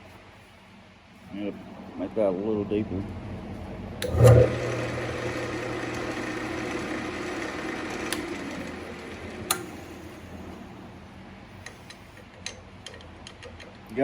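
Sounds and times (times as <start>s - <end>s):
lathe humming: 1.5s - 12.5s
lathe tool cutting wood: 4.0s - 11.1s.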